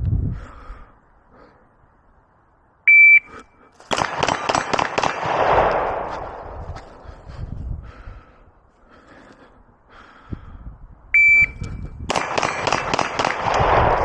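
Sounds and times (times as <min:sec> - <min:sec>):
shot timer start beep: 0:02.9 - 0:03.4, 0:11.2 - 0:11.8
rapid pistol shots: 0:03.9 - 0:06.4, 0:12.1 - 0:14.0.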